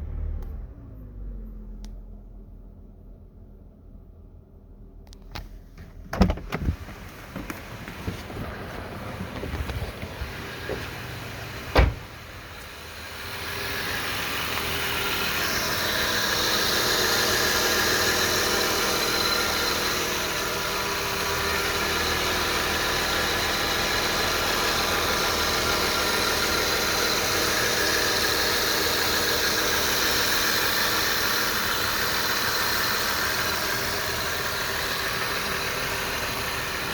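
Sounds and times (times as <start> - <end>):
car engine running: 0.0 - 36.9
thump: 11.6 - 12.2.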